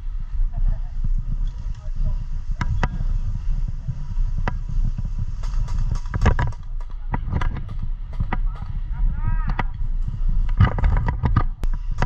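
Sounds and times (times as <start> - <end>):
wind rumble on microphone: 0.0 - 12.0
sharp clicks: 5.4 - 8.8.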